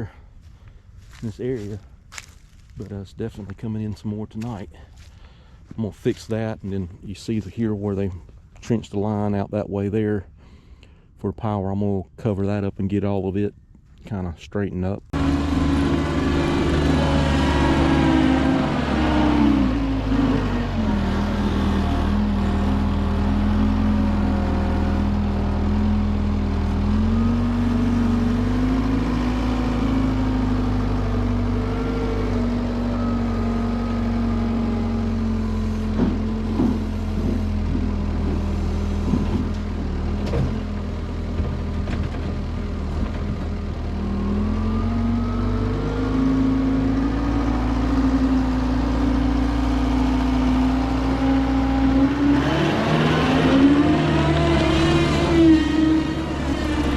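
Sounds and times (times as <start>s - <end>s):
diesel engine working under load: 15.0s - 56.9s
knocks and clanks: 35.9s - 39.6s.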